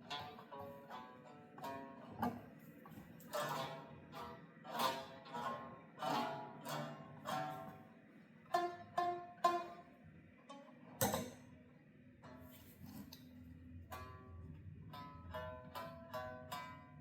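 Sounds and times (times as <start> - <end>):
plucked string notes: 0.0 - 2.6, 3.3 - 7.8, 8.5 - 11.4, 13.9 - 17.0.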